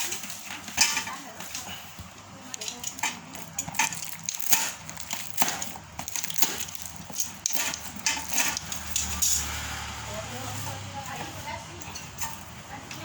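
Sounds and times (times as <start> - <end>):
knocks and clatter of handling parts: 0.0 - 9.4.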